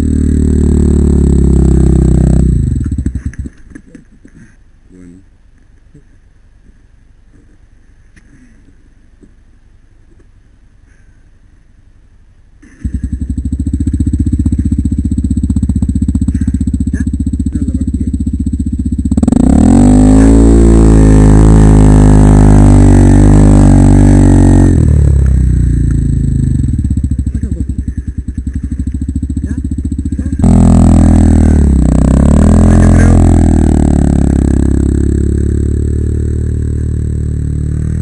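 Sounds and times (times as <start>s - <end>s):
motorcycle engine revving: 0.0s - 4.1s, 12.6s - 38.0s.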